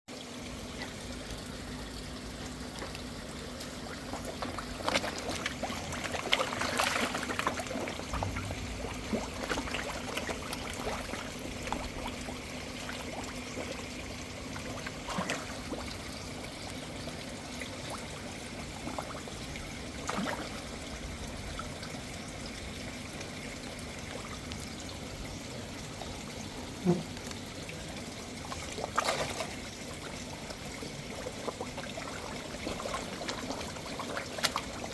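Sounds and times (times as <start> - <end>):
water trickling into pond: 0.1 - 34.9
fish splashing at surface: 2.6 - 16.1, 28.4 - 29.6.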